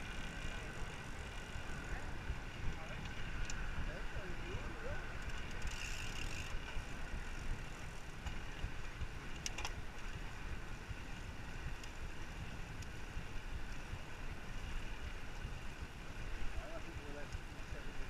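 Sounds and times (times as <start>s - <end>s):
wind rushing over microphone: 0.0s - 5.6s.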